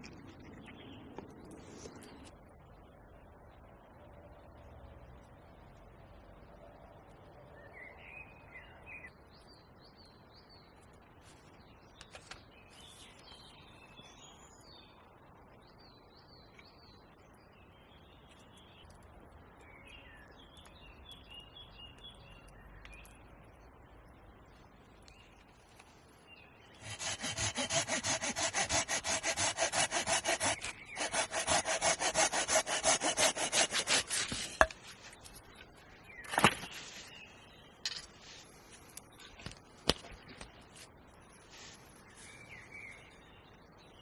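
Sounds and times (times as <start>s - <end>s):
hand saw cutting wood: 26.8s - 34.9s.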